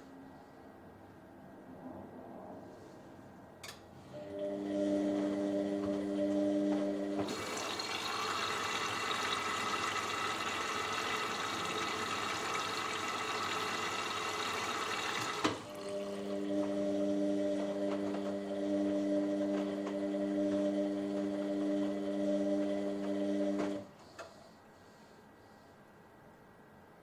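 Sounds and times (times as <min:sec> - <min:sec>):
click: 0:03.6 - 0:03.8
water rushing in washing machine: 0:04.2 - 0:23.9.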